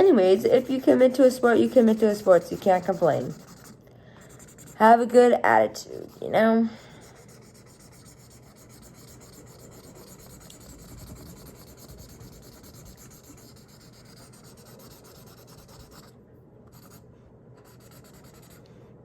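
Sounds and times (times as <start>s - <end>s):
marker squeaking on paper: 0.0s - 5.1s, 7.3s - 16.1s.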